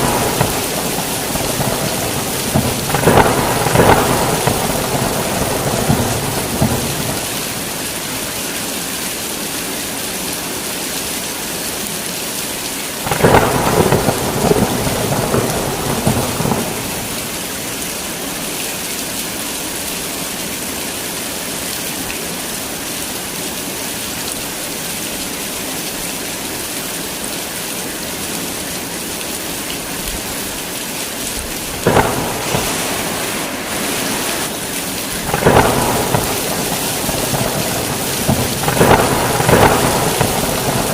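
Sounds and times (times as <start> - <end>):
thunder cracking and rumbling: 0.0 - 8.0, 13.1 - 17.5, 31.4 - 40.9
heavy rain falling: 0.0 - 40.9.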